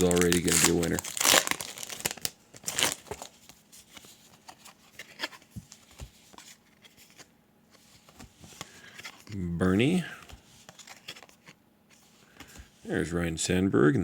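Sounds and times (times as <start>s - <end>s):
wrapper crinkling and tearing: 0.0s - 3.3s.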